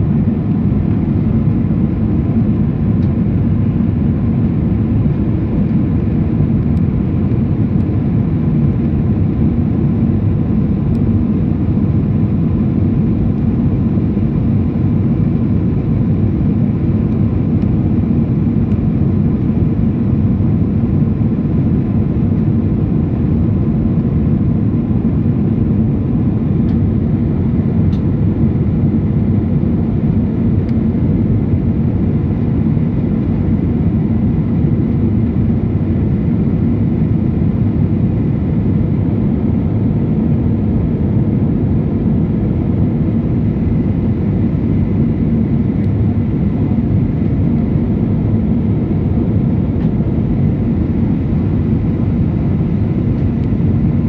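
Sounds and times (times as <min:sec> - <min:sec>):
jet engine cabin roar: 0:00.0 - 0:54.0.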